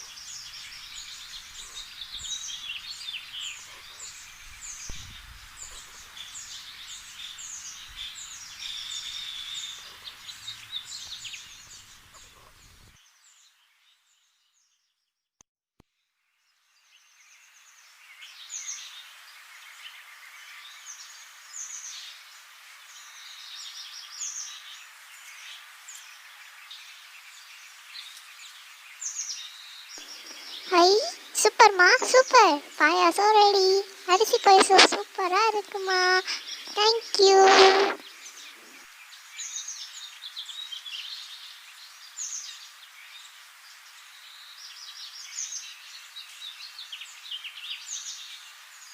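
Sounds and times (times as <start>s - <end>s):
small birds chirping: 0.0s - 14.8s, 19.7s - 48.9s.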